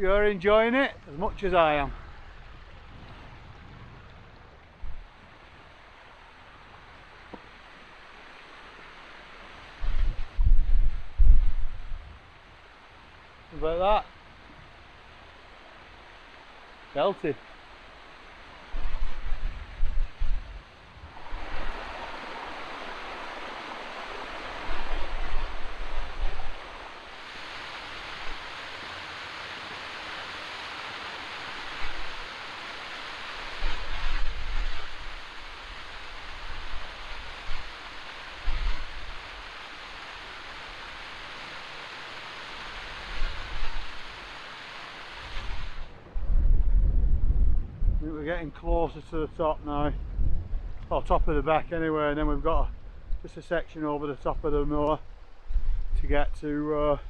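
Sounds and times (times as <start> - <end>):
wind buffeting microphone: 1.0 - 5.4, 9.8 - 12.3, 18.6 - 27.0, 33.4 - 37.8, 45.4 - 53.3, 54.3 - 57.0
waterfall rushing: 20.9 - 46.0.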